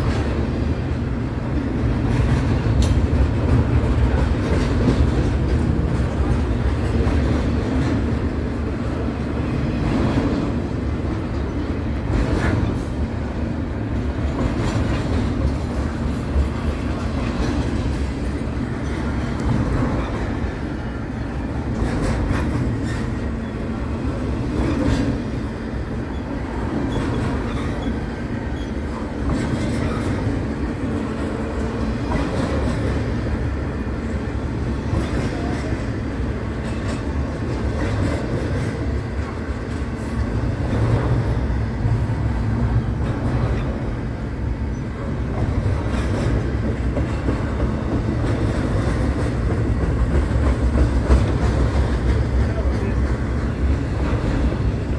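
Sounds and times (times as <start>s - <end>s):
steel wheels rumbling on rail: 0.0s - 54.9s.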